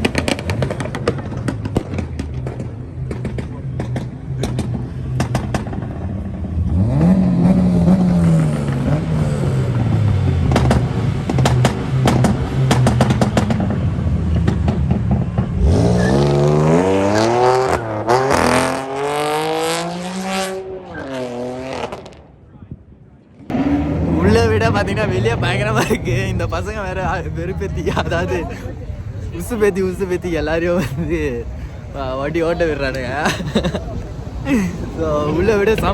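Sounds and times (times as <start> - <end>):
exhaust pops and crackles: 0.0 - 6.6, 9.7 - 15.6
car engines revving hard: 0.0 - 22.4, 23.3 - 35.9.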